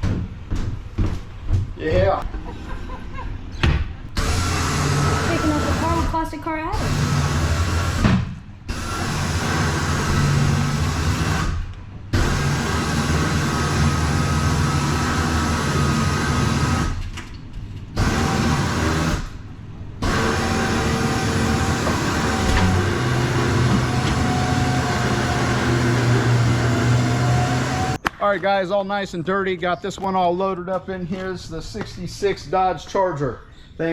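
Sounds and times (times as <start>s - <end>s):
motor running with low drone: 4.2s - 17.2s, 18.0s - 19.4s, 20.0s - 28.0s.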